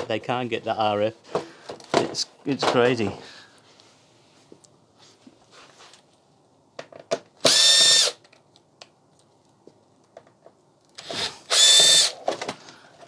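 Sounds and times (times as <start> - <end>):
electric drill whining: 7.4 - 8.2, 11.0 - 12.3.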